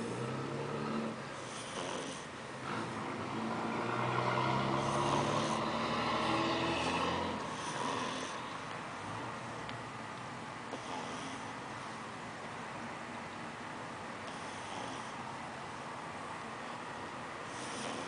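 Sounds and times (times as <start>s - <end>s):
dog snoring: 0.0s - 8.6s, 10.7s - 11.6s, 14.2s - 15.2s, 17.5s - 18.0s.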